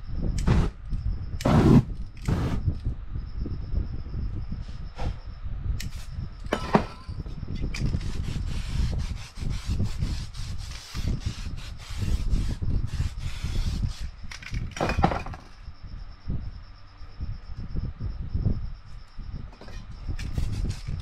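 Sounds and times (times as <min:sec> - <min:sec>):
spray paint can hissing bursts: 0:08.0 - 0:14.1.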